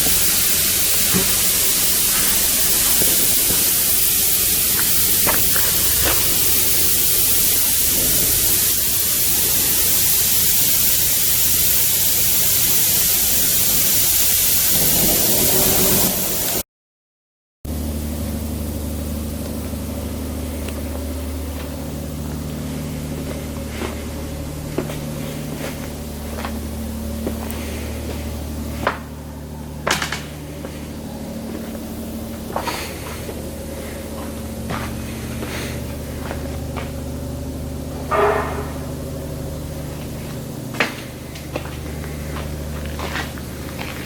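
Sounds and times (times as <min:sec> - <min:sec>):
loud steady hiss: 0:00.0 - 0:16.6, 0:17.7 - 0:44.0
machine hum with low tones: 0:00.0 - 0:16.6, 0:17.7 - 0:44.0.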